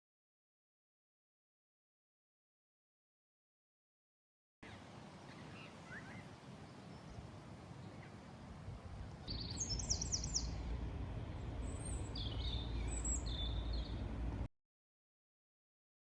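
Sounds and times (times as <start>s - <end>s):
birds chirping: 4.6s - 14.5s
low steady rumble: 8.5s - 14.5s.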